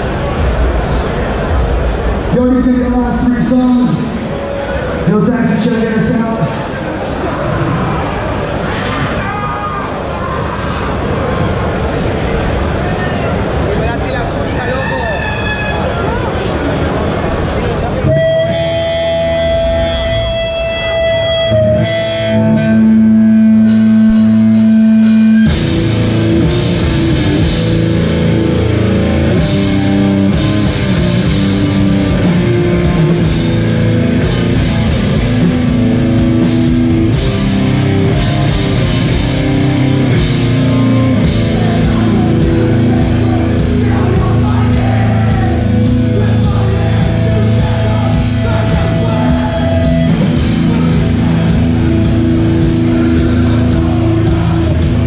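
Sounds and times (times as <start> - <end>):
loud distorted rock band: 0.0 - 55.0
drums and cymbals: 23.6 - 55.0.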